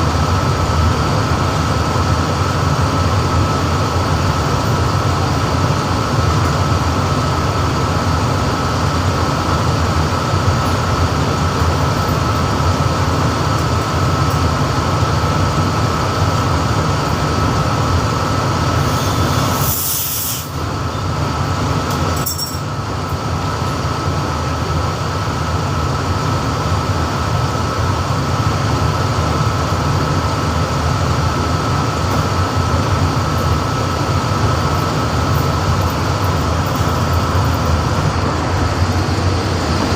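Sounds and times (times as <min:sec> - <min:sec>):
refrigeration machinery drone: 0:00.0 - 0:39.9
short hiss: 0:18.9 - 0:20.6.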